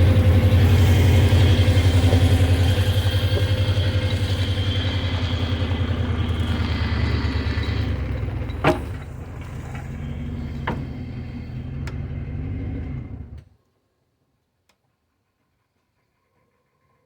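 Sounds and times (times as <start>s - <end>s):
truck engine rumbling: 0.0s - 13.4s.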